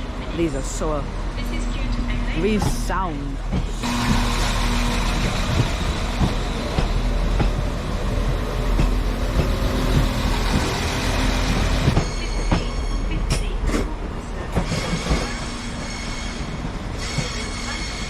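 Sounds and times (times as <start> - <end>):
train running drone: 0.0 - 18.0.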